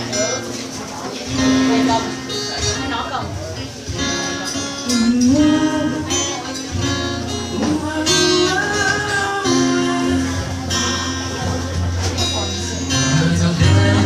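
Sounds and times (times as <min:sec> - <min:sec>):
acoustic guitar: 0:00.0 - 0:14.0
person singing wordless notes: 0:04.8 - 0:14.0.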